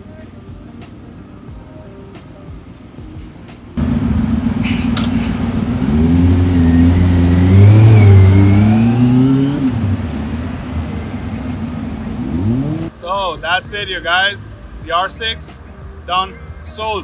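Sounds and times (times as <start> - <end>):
motorcycle engine revving: 3.8 - 12.9.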